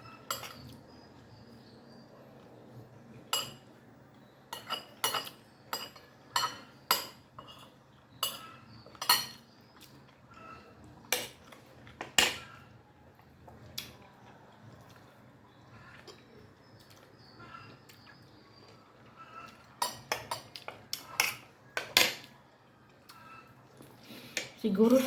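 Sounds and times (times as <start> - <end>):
cutlery clinking against plate: 0.0 - 0.9, 3.2 - 3.7, 4.5 - 12.7, 19.3 - 22.4.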